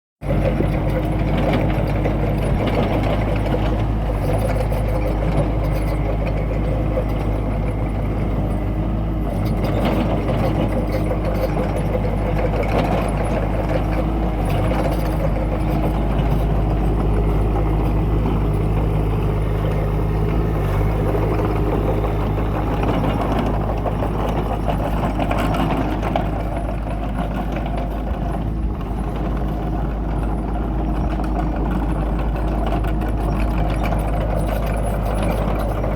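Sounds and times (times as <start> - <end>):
excavator diesel engine running: 0.2 - 35.9.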